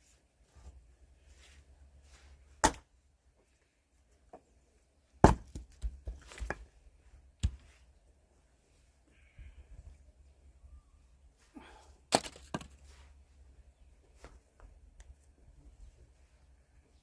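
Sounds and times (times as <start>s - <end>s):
axe splitting firewood: 2.6s - 2.9s, 5.2s - 6.7s, 12.1s - 12.8s.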